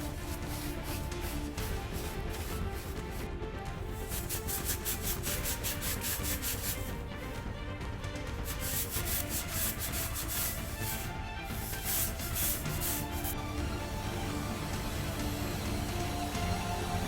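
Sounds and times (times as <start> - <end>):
rubbing strokes on surface: 0.0 - 7.4, 8.4 - 13.4
background music: 0.0 - 17.0.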